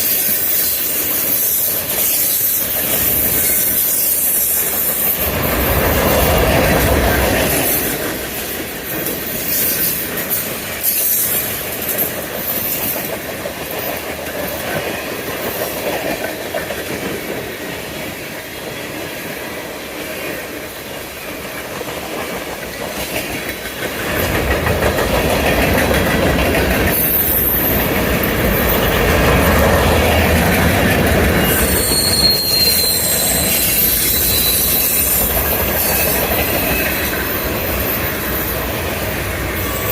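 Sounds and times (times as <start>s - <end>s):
high wheel squeal: 0.0s - 6.3s, 31.1s - 39.9s
freight train rolling on rails: 0.0s - 39.9s.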